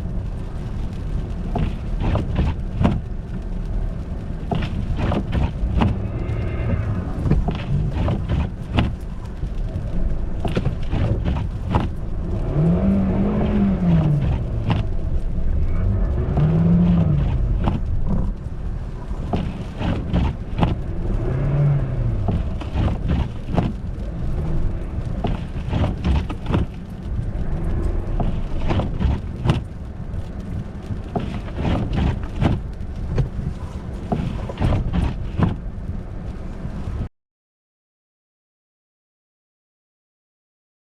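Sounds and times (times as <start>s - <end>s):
knocks and crackles: 0.0s - 37.0s
car engine revving: 4.0s - 35.6s.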